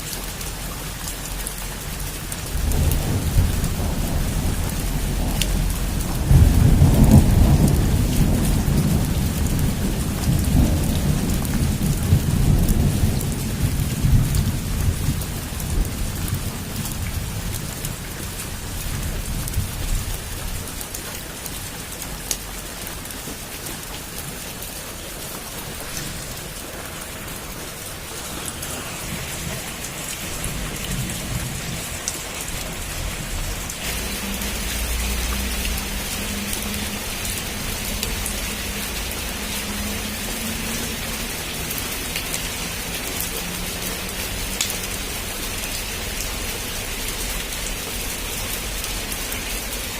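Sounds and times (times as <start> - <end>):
heavy rain: 0.0 - 49.9
long roll of thunder: 2.4 - 20.6, 25.2 - 41.2.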